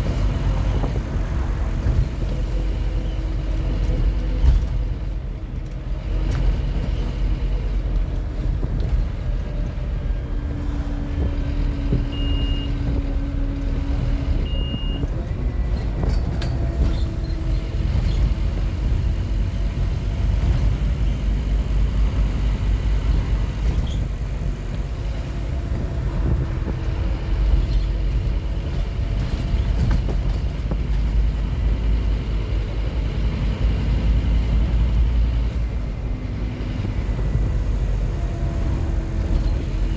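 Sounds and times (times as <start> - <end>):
bus engine rumble: 0.0 - 39.9
short high beeps: 12.1 - 12.7, 14.5 - 15.0.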